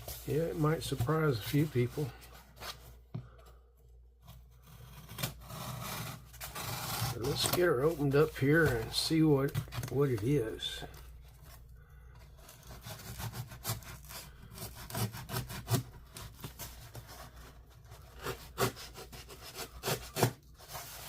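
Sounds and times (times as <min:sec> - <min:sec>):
cardboard box being scraped open: 0:04.2 - 0:08.8, 0:12.4 - 0:21.0.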